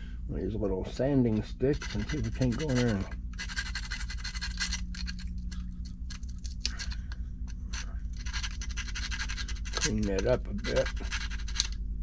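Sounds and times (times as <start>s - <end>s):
steady low hum: 0.0s - 12.0s
sanding stick rasping plastic: 1.7s - 5.2s, 7.6s - 11.8s.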